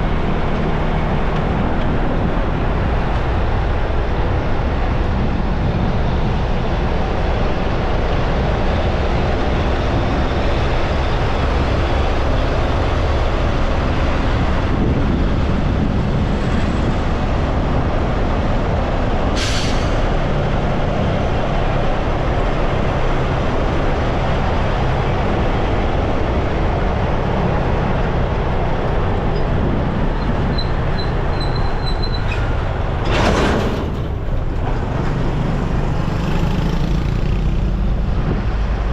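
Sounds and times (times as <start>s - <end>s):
wind and road noise: 0.0s - 38.9s.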